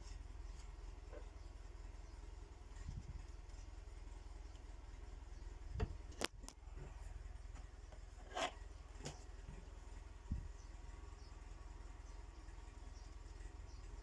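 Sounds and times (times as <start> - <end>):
low steady hum: 0.0 - 14.0
rubbing handling noises: 5.8 - 9.8.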